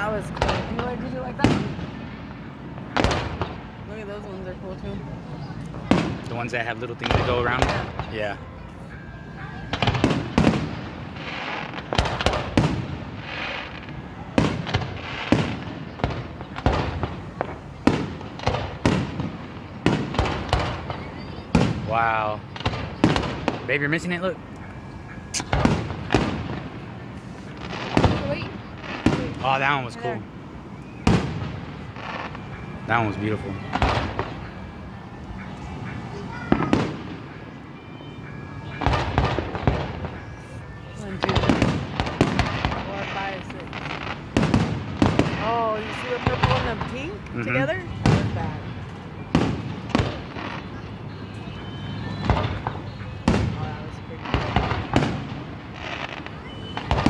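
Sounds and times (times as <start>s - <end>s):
firework crackling: 0.0s - 57.0s
firework shells bursting: 9.6s - 30.0s, 41.0s - 57.0s.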